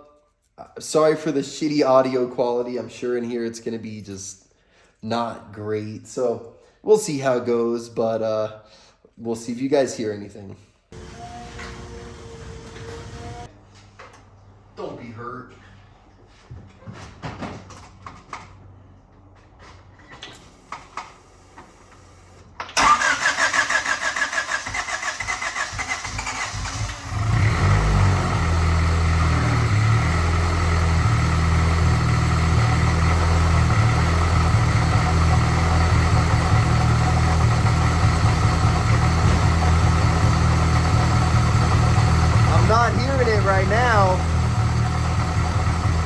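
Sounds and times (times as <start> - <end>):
starter cranking engine: 22.8 - 46.0
car engine idling: 26.6 - 46.0.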